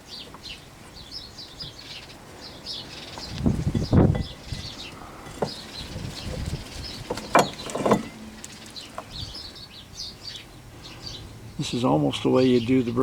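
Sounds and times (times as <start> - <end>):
songbirds chirping: 0.0 - 13.0
clunks of tools and brake parts: 3.2 - 9.1.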